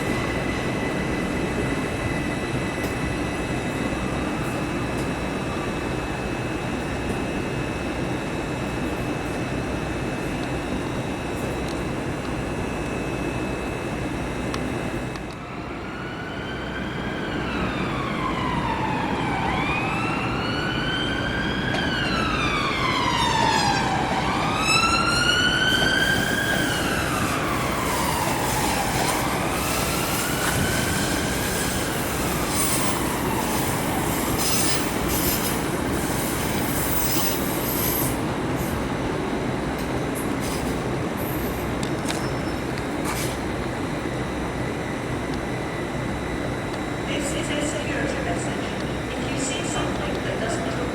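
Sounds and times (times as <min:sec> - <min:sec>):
electric train traction whine: 0:00.0 - 0:50.9
train rumbling: 0:16.0 - 0:50.9.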